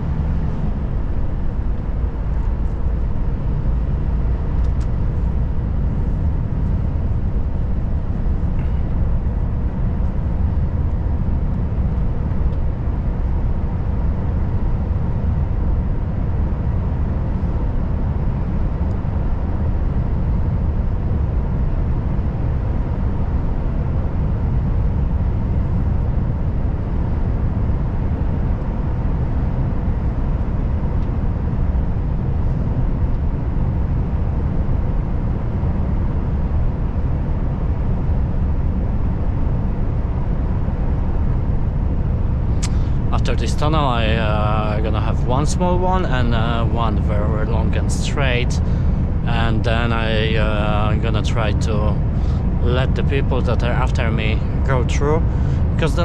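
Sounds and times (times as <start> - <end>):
faint steady tones: 0.0 - 56.0
road noise: 0.0 - 56.0
truck diesel engine rumble: 39.5 - 56.0.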